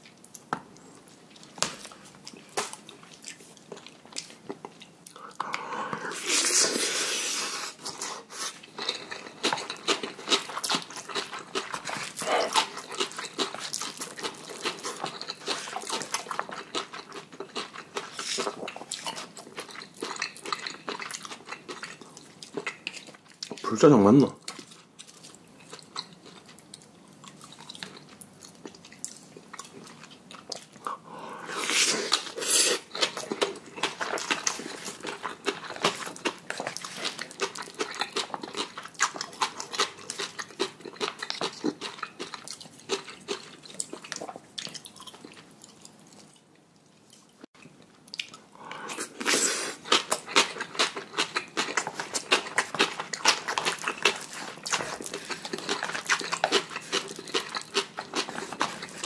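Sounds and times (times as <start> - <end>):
wet chewing with smacking: 0.0 - 6.1, 7.8 - 23.7, 24.4 - 59.0
slurping noodles: 5.5 - 8.6, 30.9 - 32.9.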